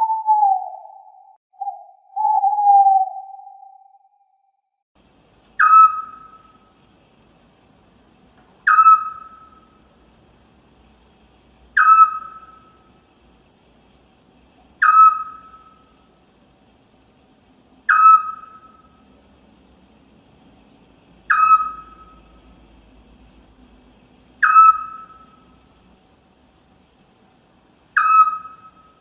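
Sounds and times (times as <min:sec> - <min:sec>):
owl hooting: 0:00.0 - 0:04.3, 0:05.6 - 0:06.7, 0:08.6 - 0:09.8, 0:11.8 - 0:12.9, 0:14.8 - 0:16.1, 0:17.9 - 0:19.1, 0:21.2 - 0:22.4, 0:24.4 - 0:25.5, 0:27.9 - 0:29.0.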